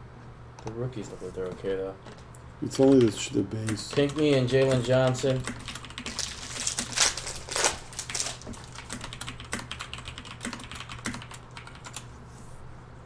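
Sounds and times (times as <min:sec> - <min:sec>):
steady low hum: 0:00.0 - 0:13.0
typing on computer keyboard: 0:02.0 - 0:12.1.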